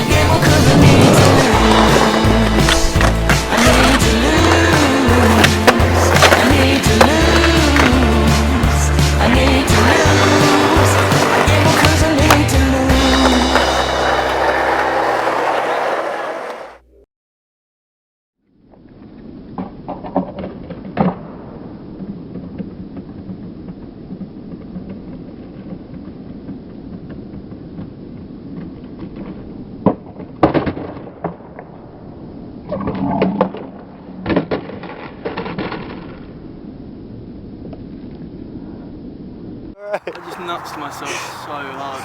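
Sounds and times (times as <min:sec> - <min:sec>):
skateboard clacking and landing: 0:00.0 - 0:08.6, 0:09.3 - 0:16.8
skateboard wheels rolling: 0:00.0 - 0:16.8.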